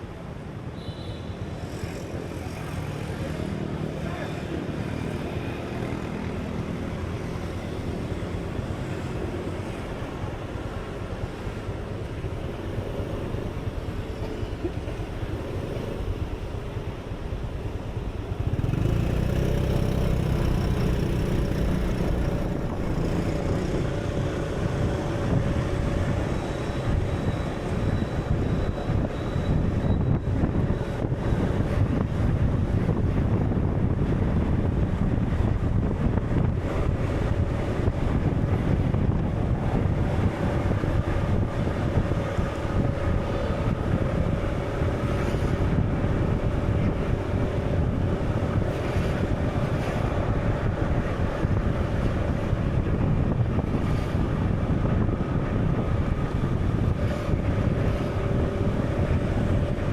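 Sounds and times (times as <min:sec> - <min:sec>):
wind and sea rumbling: 0:19.6 - 0:59.9.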